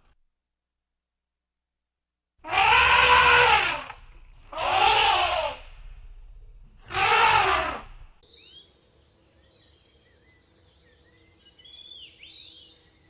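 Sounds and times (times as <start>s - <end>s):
loud harsh animal calls: 2.4s - 5.9s, 6.8s - 8.1s.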